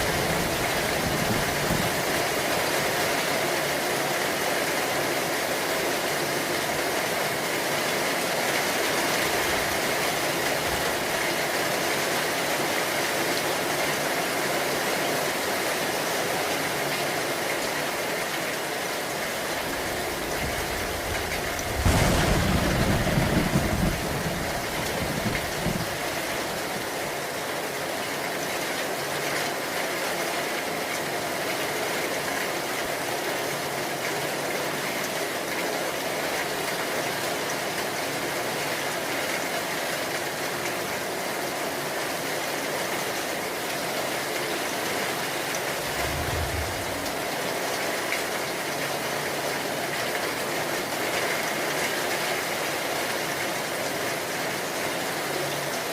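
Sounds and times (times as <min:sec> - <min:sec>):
heavy rain: 0:00.0 - 0:55.9
low rumble: 0:20.4 - 0:25.3, 0:45.8 - 0:47.5.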